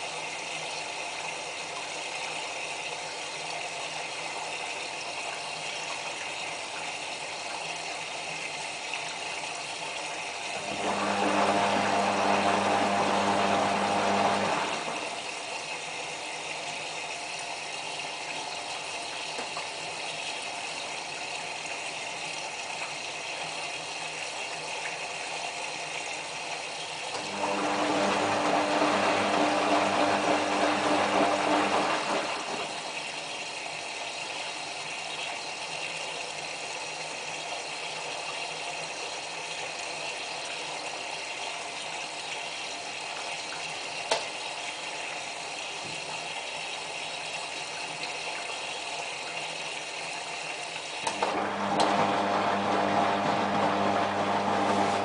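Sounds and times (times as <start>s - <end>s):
water rushing into washing machine: 0.0s - 55.0s
washing machine motor hum: 10.4s - 15.6s, 27.1s - 33.7s, 50.9s - 55.0s
washing machine drum turning: 10.6s - 15.3s, 27.2s - 33.2s, 51.1s - 55.0s.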